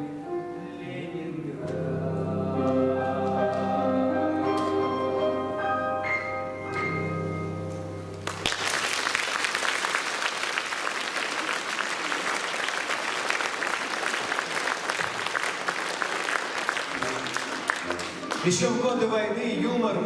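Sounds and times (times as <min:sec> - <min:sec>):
audience applause: 0:08.2 - 0:18.6.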